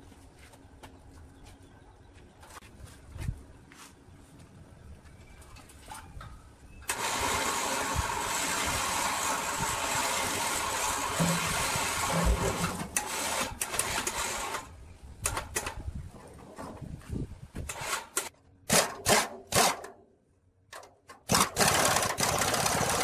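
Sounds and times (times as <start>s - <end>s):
power tool running: 6.9s - 14.7s, 21.3s - 23.0s.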